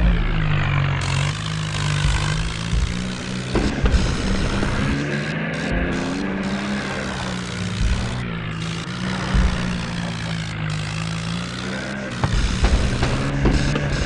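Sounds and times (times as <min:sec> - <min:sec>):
tractor engine running: 0:00.0 - 0:14.0
low thumps: 0:02.0 - 0:05.0, 0:07.6 - 0:08.6, 0:09.2 - 0:10.3, 0:12.2 - 0:14.0.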